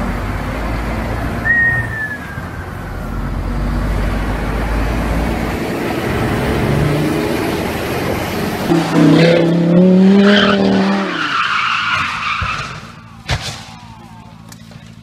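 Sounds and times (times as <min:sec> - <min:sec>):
car engine running hard: 0:00.0 - 0:11.4
tyres skidding and squealing: 0:00.0 - 0:15.0.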